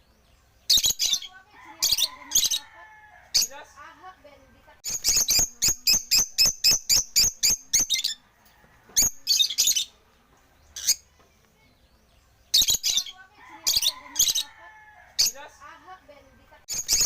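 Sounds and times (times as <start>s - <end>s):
lovebirds chirping: 0.0s - 17.0s.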